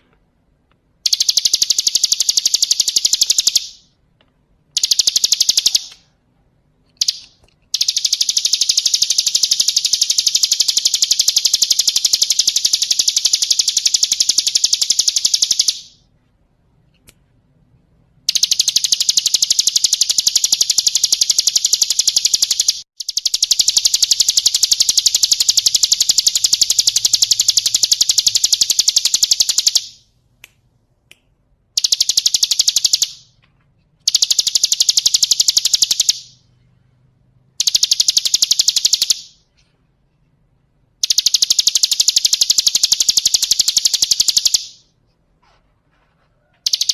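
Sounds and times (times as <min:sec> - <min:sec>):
bird singing fast trills: 0:01.1 - 0:03.8, 0:04.8 - 0:05.9, 0:07.0 - 0:16.0, 0:18.3 - 0:30.0, 0:37.6 - 0:39.3.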